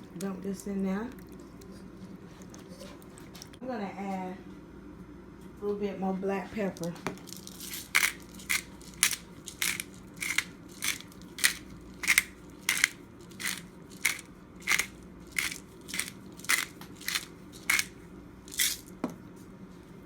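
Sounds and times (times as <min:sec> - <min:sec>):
pepper grinder crunching: 0:06.8 - 0:19.0.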